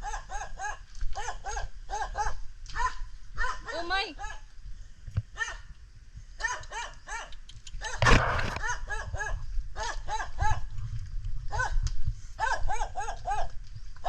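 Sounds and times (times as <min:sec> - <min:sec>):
dog barking: 0:00.0 - 0:04.4, 0:05.4 - 0:05.6, 0:06.4 - 0:10.6, 0:11.5 - 0:11.8, 0:12.4 - 0:13.5
brief loud noise: 0:08.0 - 0:08.7.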